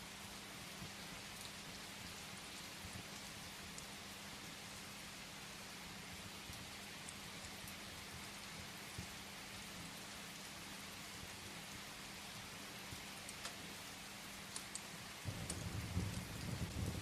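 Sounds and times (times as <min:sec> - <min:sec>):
rain hissing on a surface: 0:00.0 - 0:17.0
wood fire crackling: 0:12.9 - 0:17.0.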